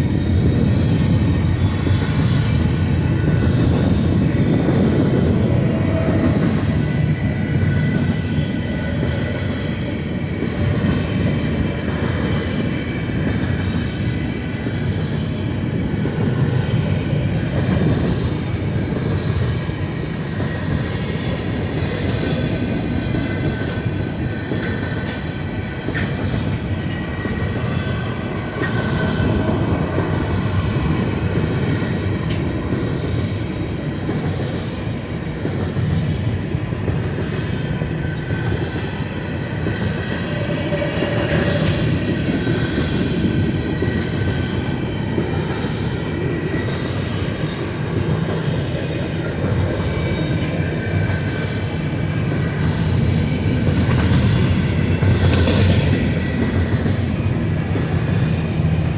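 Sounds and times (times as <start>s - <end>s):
freight train wheels rumbling: 0.0s - 58.9s.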